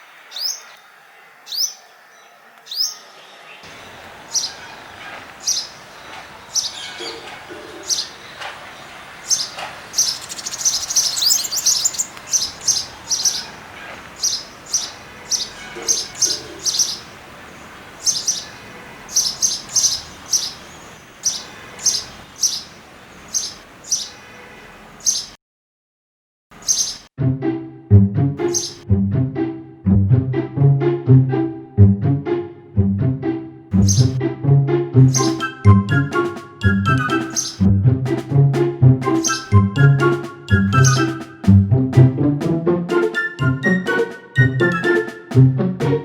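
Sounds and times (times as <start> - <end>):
small birds chirping: 0.0 - 25.4, 26.6 - 27.1, 28.4 - 28.8, 33.8 - 34.2, 35.1 - 36.0, 36.7 - 37.7, 39.1 - 39.6, 40.5 - 41.2
music: 27.2 - 46.0.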